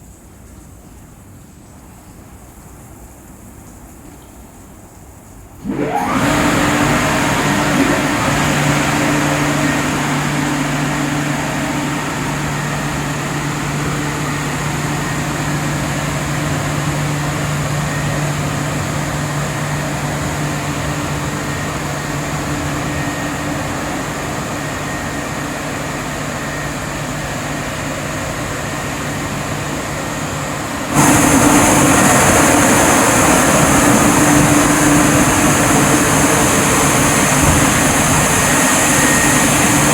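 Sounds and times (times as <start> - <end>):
high-pressure water spray: 5.6 - 24.3, 30.9 - 39.9
car wash machine hissing: 5.6 - 39.9
low motor hum: 5.6 - 39.9.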